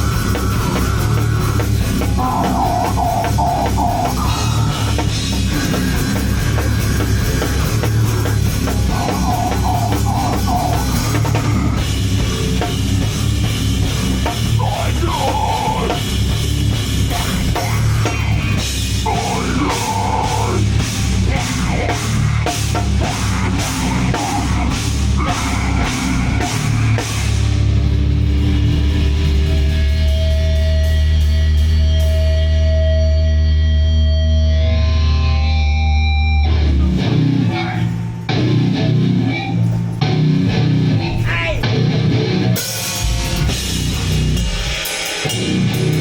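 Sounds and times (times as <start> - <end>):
drum kit and cymbals: 0.0 - 34.3, 36.3 - 46.0
heavy metal band playing: 0.0 - 46.0.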